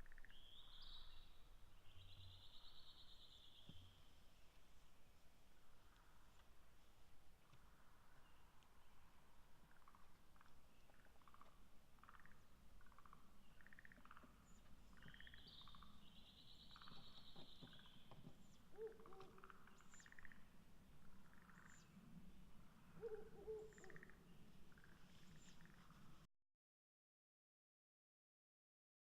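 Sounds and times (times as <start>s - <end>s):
owl long raspy call: 18.7s - 20.3s, 23.0s - 24.2s.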